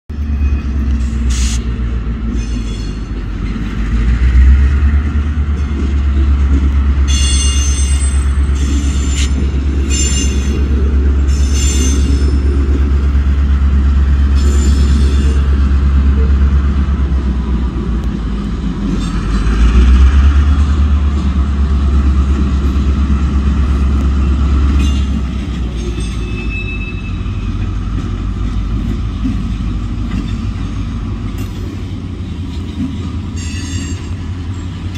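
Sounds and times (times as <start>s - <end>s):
freight train rumbling past: 0.1s - 34.9s
high-pitched wheel squeals: 25.8s - 27.5s.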